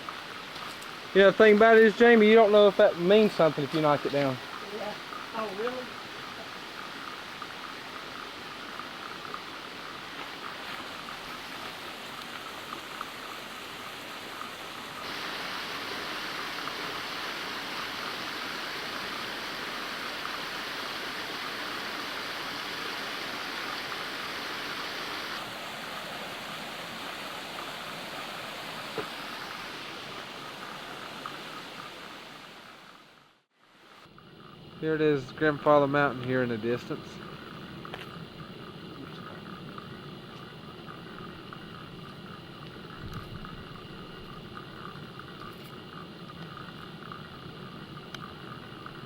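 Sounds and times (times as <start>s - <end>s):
water cascading over rock: 0.0s - 34.1s.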